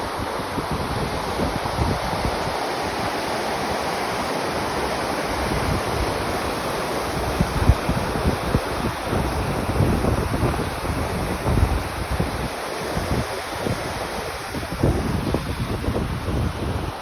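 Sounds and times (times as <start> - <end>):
waterfall roaring: 0.0 - 17.0
wind buffeting microphone: 0.0 - 17.0.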